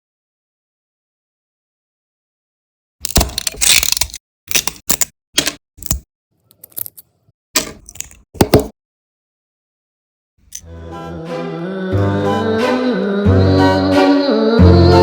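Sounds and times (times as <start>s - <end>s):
plastic parts clicking and rattling: 3.0s - 8.7s.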